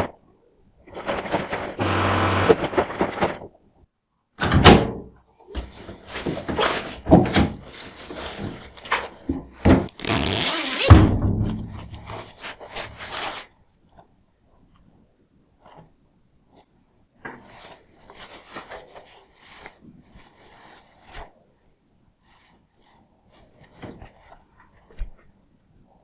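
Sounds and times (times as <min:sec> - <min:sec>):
rustling: 0:00.8 - 0:03.6, 0:05.5 - 0:26.0
handling knocks and thumps: 0:04.4 - 0:10.2, 0:10.8 - 0:13.1.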